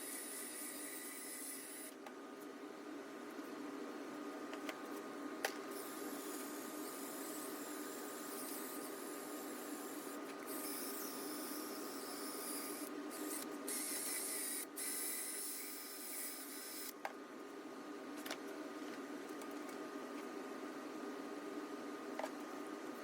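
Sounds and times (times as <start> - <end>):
small motor running with hiss: 0.0 - 2.0, 5.7 - 17.0.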